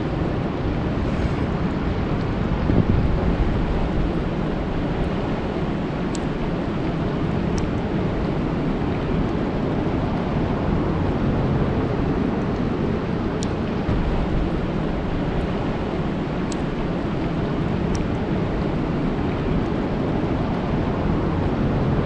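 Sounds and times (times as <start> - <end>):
deep low rumble: 13.6 - 18.6.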